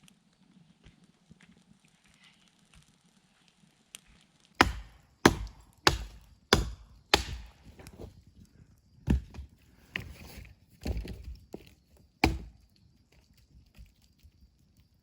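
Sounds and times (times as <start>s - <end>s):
wood being chopped: 4.6s - 8.1s, 12.2s - 12.6s.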